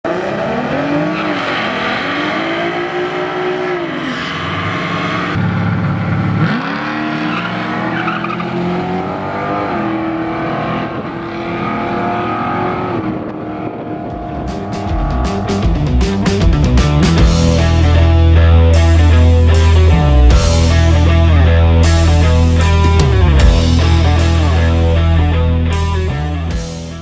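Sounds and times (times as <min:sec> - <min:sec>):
car engine revving: 0:00.1 - 0:26.8
rhythmic music: 0:14.1 - 0:27.0.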